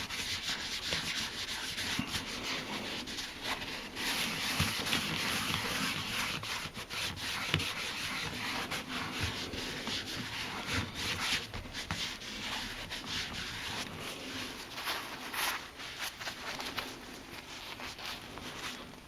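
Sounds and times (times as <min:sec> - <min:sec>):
cloth pad rubbing leather: 0:00.0 - 0:19.0.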